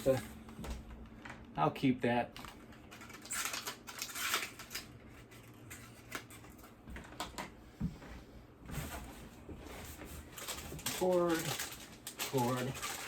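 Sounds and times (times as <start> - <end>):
plastic packaging rustling: 2.3 - 7.3, 8.7 - 13.0
items clicking in a box: 10.4 - 13.0.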